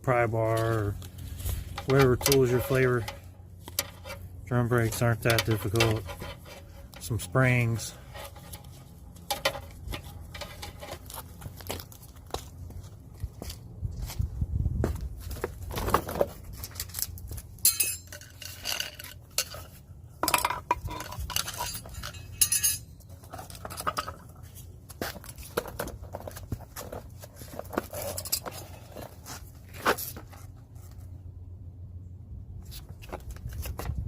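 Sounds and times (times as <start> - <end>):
metal clinks and clanks: 1.7 - 11.0, 17.6 - 24.3.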